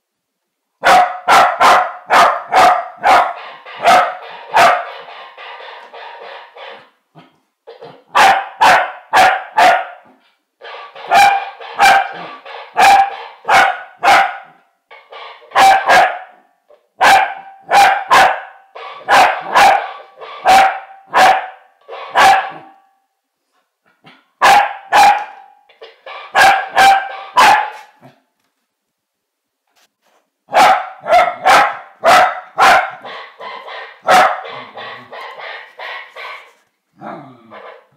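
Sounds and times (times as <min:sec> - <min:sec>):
dog barking: 0:00.8 - 0:05.0, 0:08.0 - 0:10.1, 0:11.1 - 0:14.6, 0:15.5 - 0:16.4, 0:17.0 - 0:22.8, 0:24.4 - 0:25.5, 0:26.1 - 0:28.0, 0:30.5 - 0:36.5.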